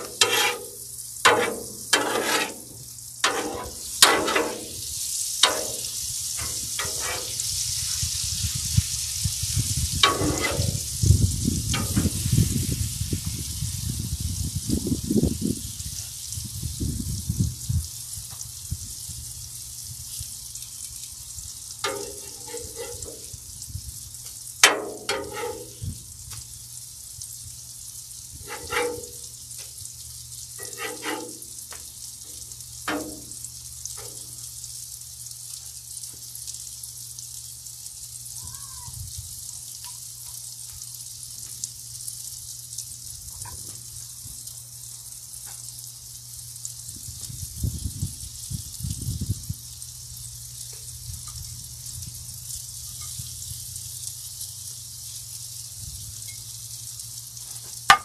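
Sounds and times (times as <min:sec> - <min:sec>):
metal spatula scraping and knocking: 0:00.0 - 0:04.8, 0:05.4 - 0:07.4, 0:10.0 - 0:10.8, 0:11.8 - 0:12.1, 0:21.9 - 0:23.3, 0:24.6 - 0:25.8, 0:28.4 - 0:29.2, 0:30.6 - 0:31.4, 0:32.9 - 0:33.3
food sizzling on a griddle: 0:00.0 - 0:58.0.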